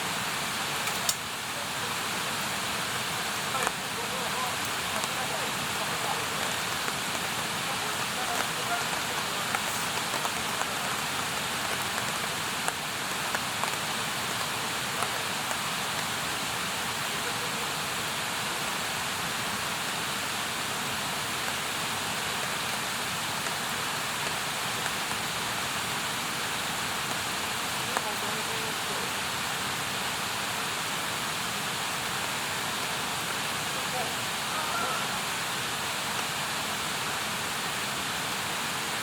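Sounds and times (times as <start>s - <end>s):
campfire crackling: 0.2s - 17.6s.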